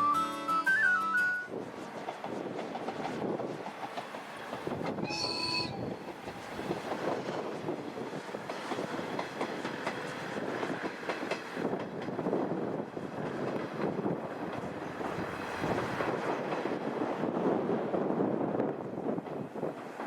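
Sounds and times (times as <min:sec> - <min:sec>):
wheels clattering over rail joints: 0:02.0 - 0:17.3
short high train horn: 0:05.0 - 0:05.9.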